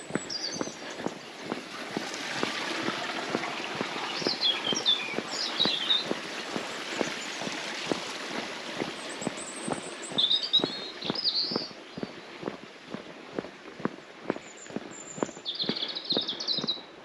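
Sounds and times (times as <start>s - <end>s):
small bird chirping: 0.0s - 1.6s, 3.6s - 7.5s, 8.9s - 12.6s, 14.4s - 16.9s
footsteps walking: 0.0s - 17.0s.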